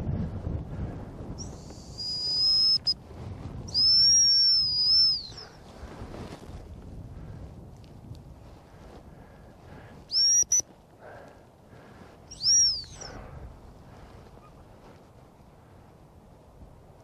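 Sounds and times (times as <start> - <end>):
wind rumbling on microphone: 0.0 - 17.0
dog whistle blasts: 1.4 - 3.0, 3.7 - 5.4, 10.1 - 10.6, 12.3 - 13.1.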